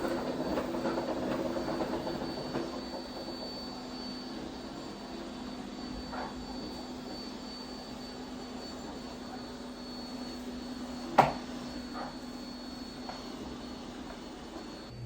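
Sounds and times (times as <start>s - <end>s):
mechanical hum with high whine: 0.0s - 15.0s.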